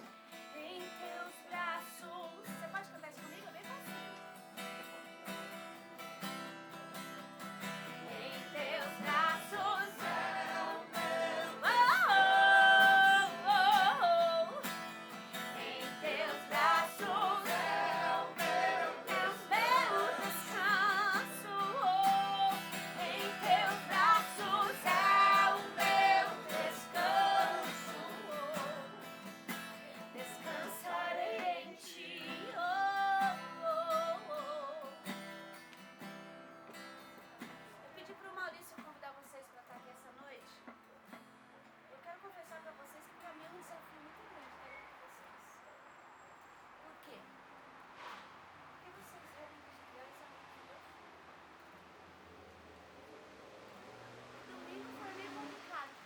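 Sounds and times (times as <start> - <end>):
strummed acoustic guitar: 0.0 - 37.8
woman singing: 0.6 - 2.8, 8.1 - 29.0, 30.0 - 35.0.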